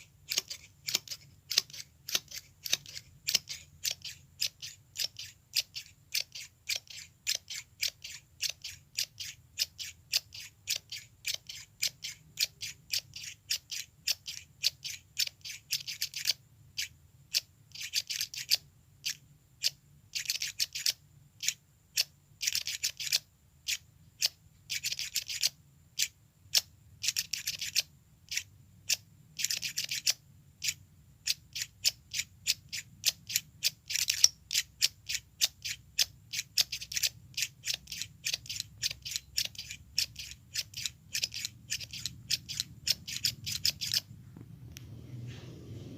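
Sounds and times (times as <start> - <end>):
scissors snipping: 0.3 - 16.4.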